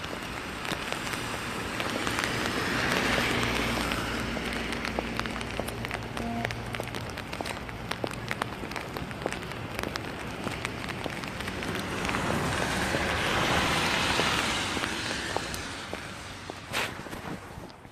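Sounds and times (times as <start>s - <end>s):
sharp raindrop ticks: 0.0s - 16.7s
rain falling: 0.0s - 17.9s
vehicle tyres hissing on wet road: 0.0s - 17.9s.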